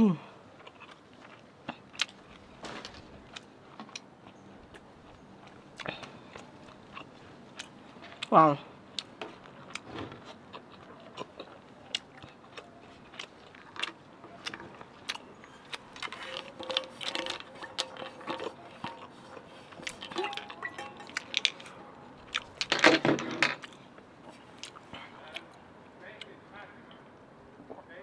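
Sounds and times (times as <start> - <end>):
chewing and wet mouth clicks: 10.5 - 22.7, 23.6 - 25.5
water bottle handling noise: 15.6 - 23.7.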